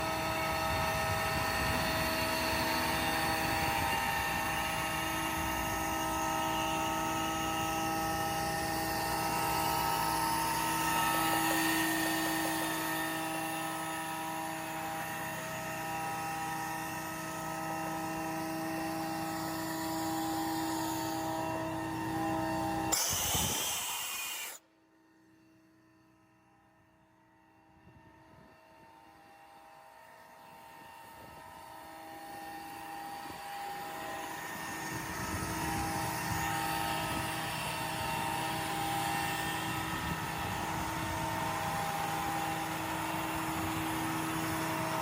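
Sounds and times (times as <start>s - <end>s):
high whining tones: 19.2s - 24.6s.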